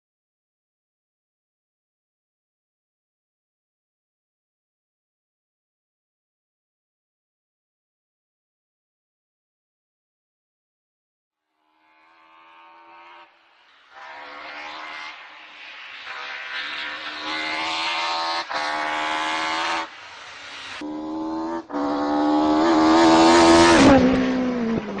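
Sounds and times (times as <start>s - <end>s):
high-revving engine accelerating: 12.0s - 25.0s.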